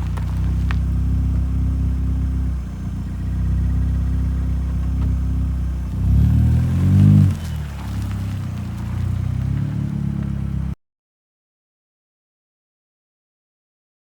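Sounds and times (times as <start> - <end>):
car engine running and revving: 0.0 - 10.8.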